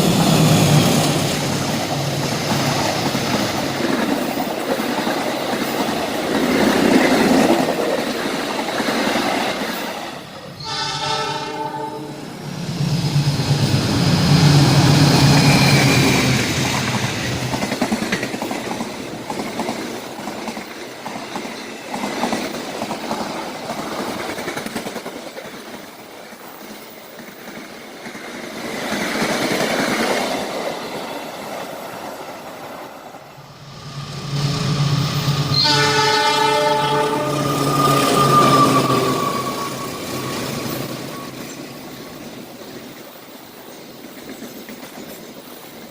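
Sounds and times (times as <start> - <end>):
train wheels rumbling on rail: 0.0 - 45.9
train horn blast: 10.6 - 12.5, 35.3 - 41.4.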